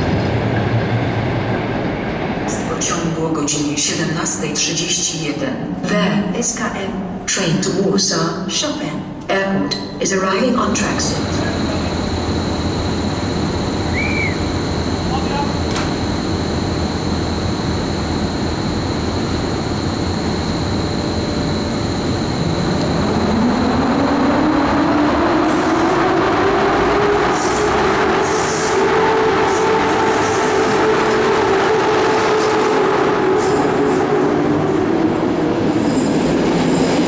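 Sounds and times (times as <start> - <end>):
commuter train rumble: 0.0 - 37.0
motor whine rising in pitch: 11.4 - 34.4.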